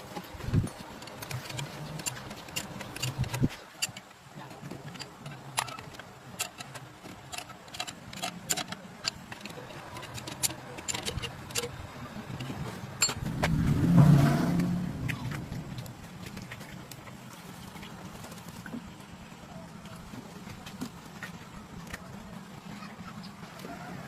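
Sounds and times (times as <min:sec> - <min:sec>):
low steady hum: 0:00.0 - 0:24.0
rushing swell: 0:13.2 - 0:16.3.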